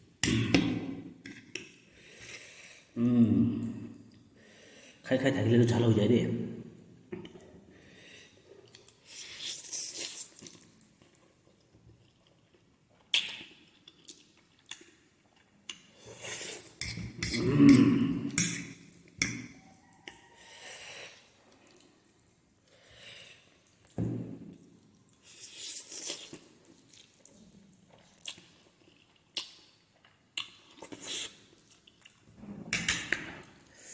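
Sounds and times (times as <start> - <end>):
slurping and chewing noodles: 8.6 - 18.8, 24.9 - 32.3.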